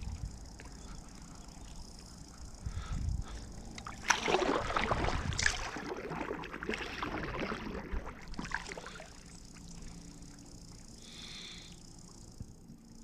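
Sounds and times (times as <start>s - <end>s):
water splashing around kayak: 3.8s - 9.6s.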